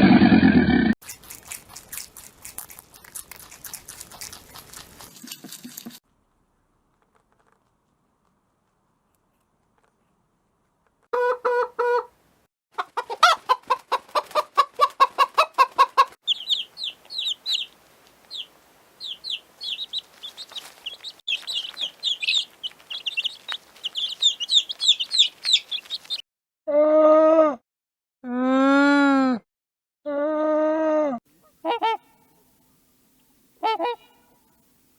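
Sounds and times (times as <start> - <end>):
hen clucking: 11.1 - 12.2, 12.8 - 26.2, 31.6 - 32.2, 33.6 - 34.1
chicks peeping: 12.8 - 26.2.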